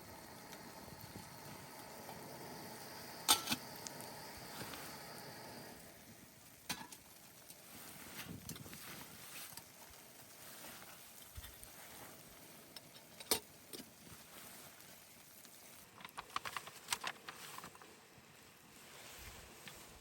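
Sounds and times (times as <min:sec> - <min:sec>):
low steady hiss: 0:00.0 - 0:20.0
small objects clicking: 0:15.8 - 0:17.9.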